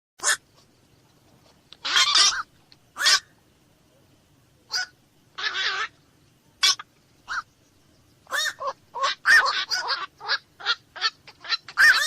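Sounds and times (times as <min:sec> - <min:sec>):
heron croaking calls: 0:01.8 - 0:03.4, 0:04.7 - 0:06.0, 0:06.6 - 0:07.5, 0:08.2 - 0:12.0.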